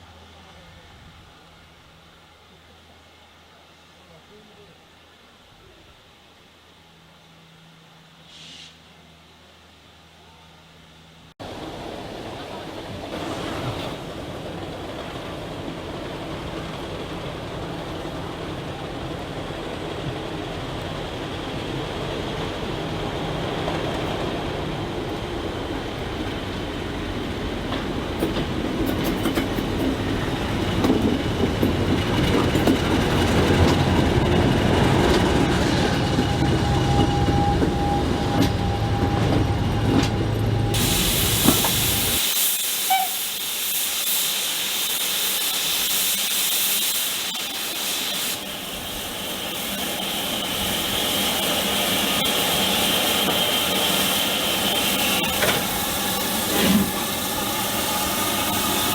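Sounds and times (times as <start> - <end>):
steady loud hiss: 0.0 - 14.8, 40.7 - 58.9
train rumbling on rails: 11.4 - 58.9.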